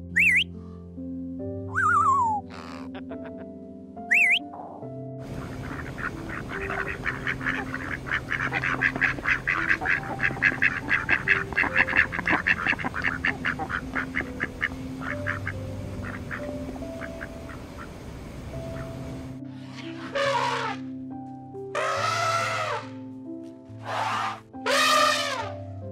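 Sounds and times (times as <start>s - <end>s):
ducks quacking: 0.2s - 0.4s, 4.1s - 4.5s, 5.2s - 19.1s, 19.7s - 20.9s, 21.8s - 22.9s, 23.8s - 25.6s.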